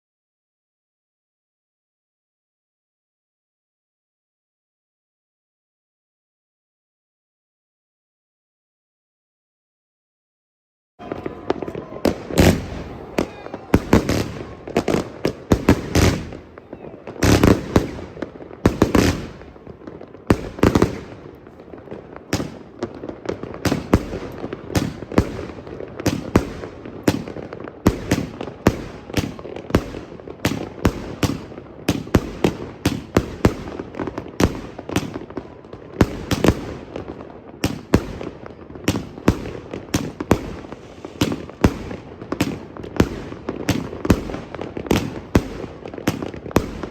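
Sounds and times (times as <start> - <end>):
fireworks bangs: 11.0 - 46.9.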